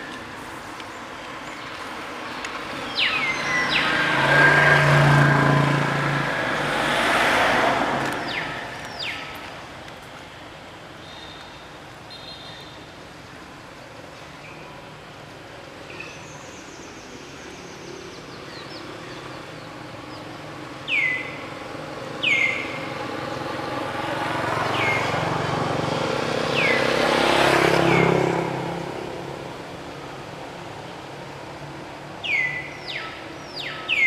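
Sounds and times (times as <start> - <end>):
motor vehicle passing: 1.7 - 9.6, 21.9 - 29.7.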